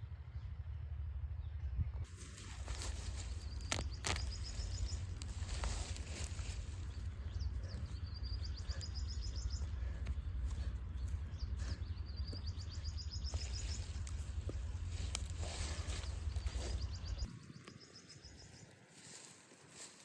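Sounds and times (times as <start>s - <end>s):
steady low rumble: 0.0s - 18.5s
small bird trilling: 2.5s - 9.9s.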